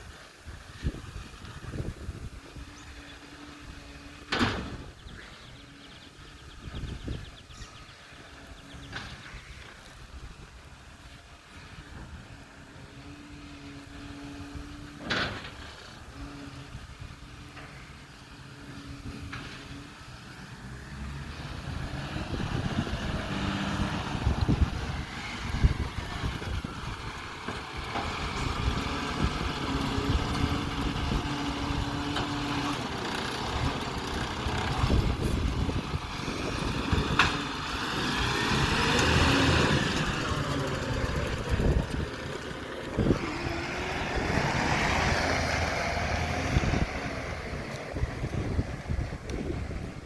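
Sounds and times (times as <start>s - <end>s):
garbage truck engine rumble: 0.0s - 50.0s.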